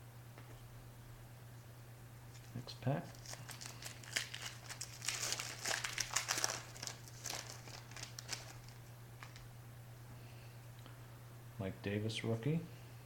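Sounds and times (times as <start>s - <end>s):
plastic wrapper tearing and crinkling: 2.3s - 9.5s.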